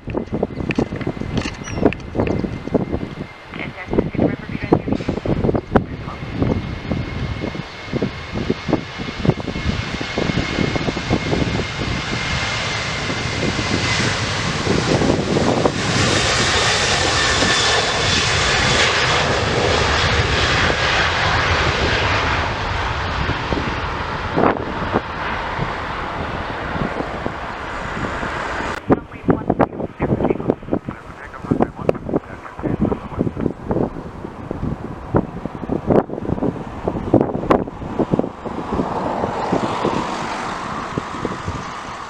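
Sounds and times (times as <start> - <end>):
jet engines whining: 0.0 - 42.0
wind buffeting microphone: 0.0 - 42.0.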